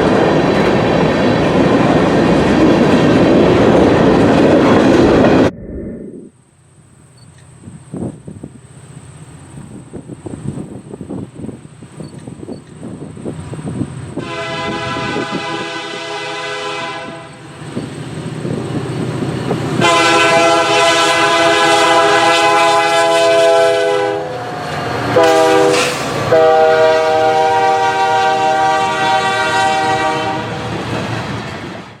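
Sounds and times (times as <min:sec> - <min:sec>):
train rumbling and clattering: 0:00.0 - 0:05.6, 0:07.3 - 0:32.0
locomotive air horn blasts: 0:14.2 - 0:17.4, 0:19.8 - 0:30.7.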